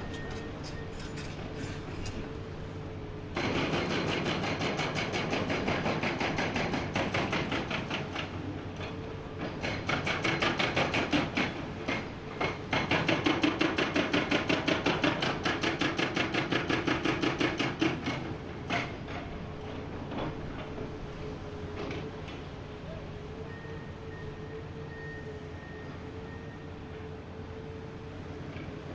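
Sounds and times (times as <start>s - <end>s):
hydraulic rock breaker hammering: 3.3s - 8.2s, 9.4s - 19.3s.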